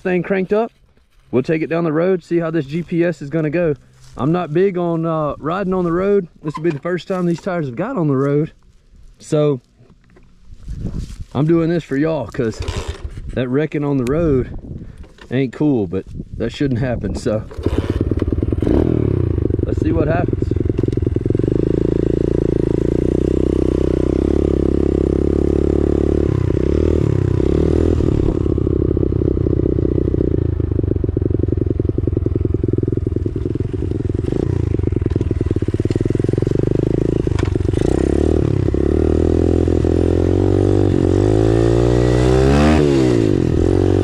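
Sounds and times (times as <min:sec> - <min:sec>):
motorbike engine running: 0:17.3 - 0:44.0.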